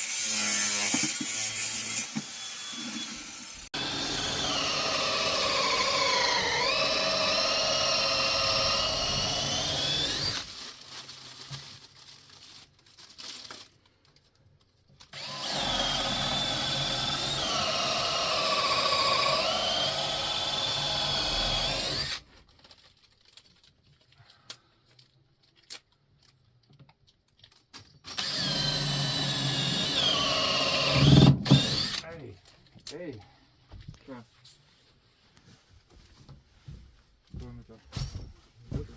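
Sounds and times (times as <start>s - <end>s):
power drill drilling into wood: 0.2s - 10.6s, 15.1s - 22.2s, 28.1s - 32.0s.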